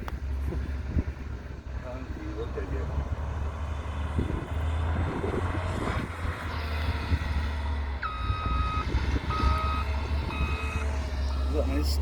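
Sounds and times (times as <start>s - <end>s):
low engine rumble: 0.0s - 12.0s
reversing alarm beeps: 8.0s - 11.9s.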